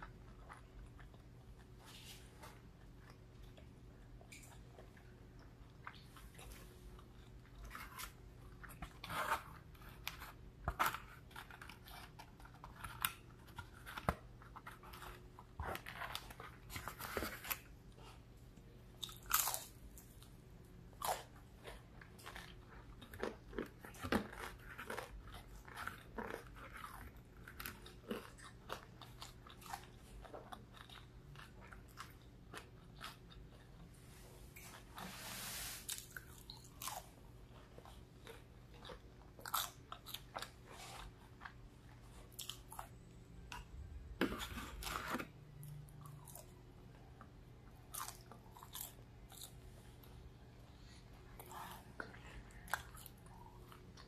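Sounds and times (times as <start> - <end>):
faint low hum: 0.0 - 54.0
chewing crispy food: 18.9 - 35.1, 35.9 - 44.1, 44.8 - 50.5, 51.2 - 54.0.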